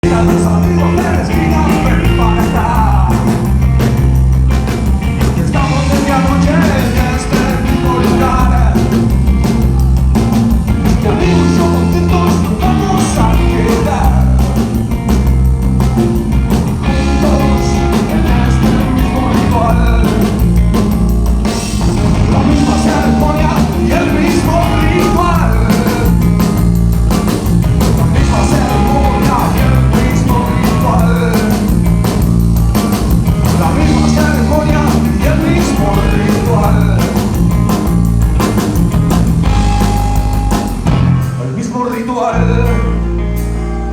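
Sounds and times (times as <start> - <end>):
person singing: 0.0 - 3.5, 5.2 - 10.1, 10.7 - 14.7, 16.8 - 20.4, 22.2 - 26.3, 28.0 - 31.8, 33.5 - 37.3
live rock band playing: 0.0 - 43.9.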